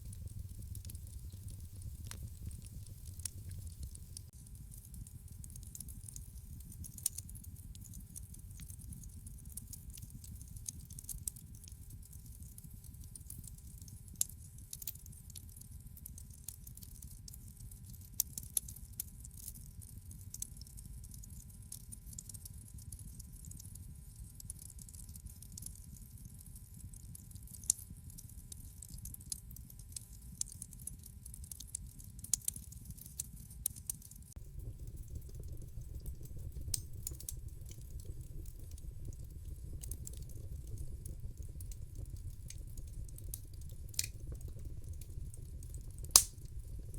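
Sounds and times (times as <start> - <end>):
sharp pops and snaps: 0.0 - 13.6, 33.6 - 46.9
wood fire crackling: 0.0 - 15.2, 30.4 - 46.9
low rumble of burning: 0.0 - 46.9.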